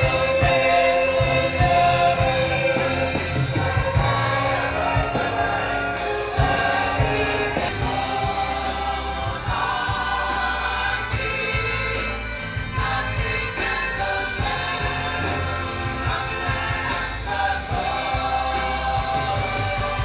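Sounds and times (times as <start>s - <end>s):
percussive beat: 0.0s - 10.4s
choir singing: 0.0s - 20.0s
low bass notes: 0.0s - 20.0s.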